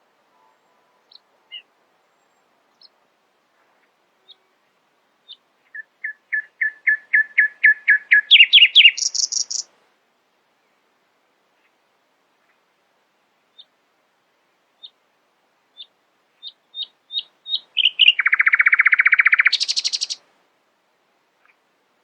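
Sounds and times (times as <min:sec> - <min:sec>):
nightingale singing: 0:05.2 - 0:09.7, 0:14.8 - 0:15.0, 0:15.8 - 0:20.2.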